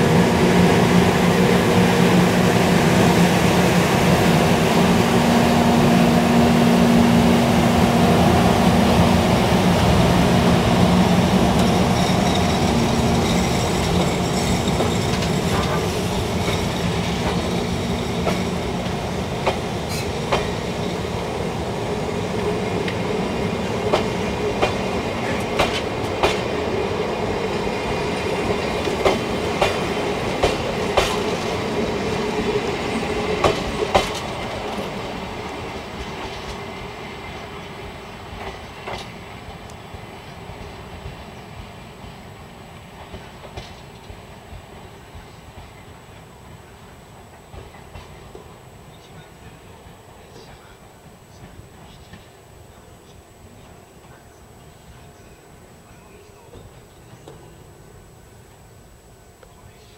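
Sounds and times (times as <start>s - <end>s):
passing train: 0.0s - 59.9s
wheels clacking over rail joints: 11.2s - 20.6s, 22.4s - 26.6s, 27.9s - 31.7s, 32.8s - 35.0s.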